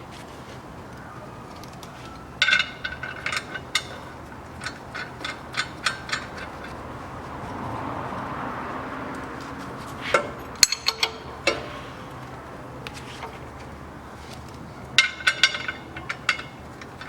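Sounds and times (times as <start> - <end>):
ratchet wrench clicking: 2.4 - 6.9, 10.1 - 11.7.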